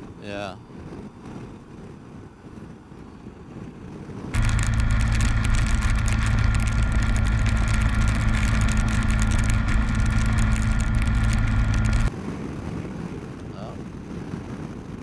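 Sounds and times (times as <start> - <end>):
wind and road noise: 0.0 - 15.0
motorcycle engine cruising: 4.4 - 12.1.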